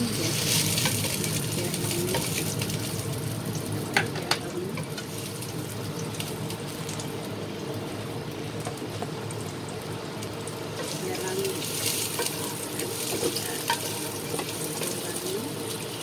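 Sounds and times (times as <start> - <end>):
food sizzling in hot oil: 0.0 - 16.0
steady low hum: 0.0 - 16.0
spatula tapping a pan: 12.1 - 15.0.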